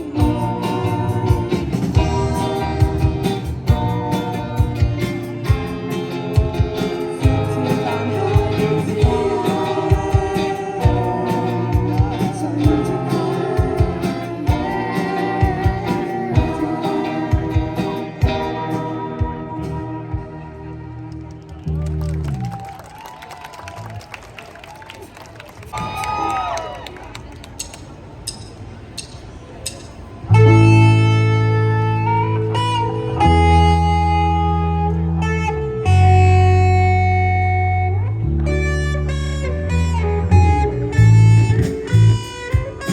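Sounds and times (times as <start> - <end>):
lead vocal singing: 0.0 - 19.9
electric guitar chords ringing: 0.0 - 21.2, 30.3 - 42.9
live band playing: 0.0 - 22.6, 27.6 - 42.9.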